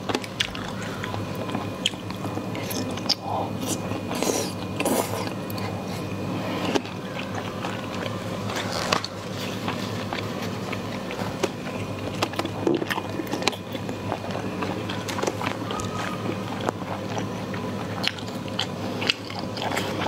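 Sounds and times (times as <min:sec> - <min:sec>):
person chewing food: 0:00.0 - 0:20.0
steady low hum: 0:00.0 - 0:20.0.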